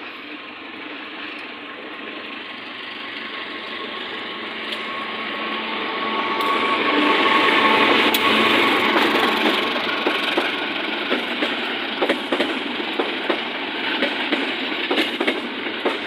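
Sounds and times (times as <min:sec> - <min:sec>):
train running on track: 0:00.0 - 0:16.0
thin high tone: 0:03.0 - 0:09.9
sharp clacks: 0:11.1 - 0:13.4, 0:14.0 - 0:16.0.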